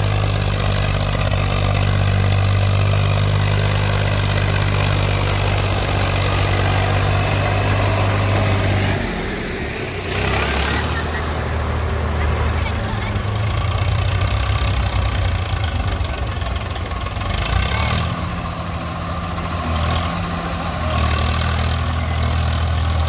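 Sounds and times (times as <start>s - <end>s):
diesel engine humming: 0.0s - 23.0s.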